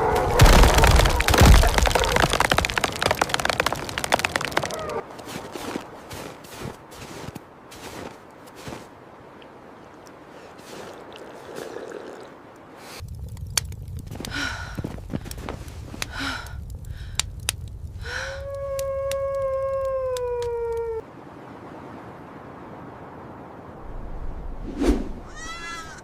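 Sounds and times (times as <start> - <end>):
wolf howling: 0.0 - 2.5, 4.4 - 5.0, 18.1 - 21.0
blizzard wind rumble: 0.0 - 26.0
wolf short cries: 25.2 - 26.0.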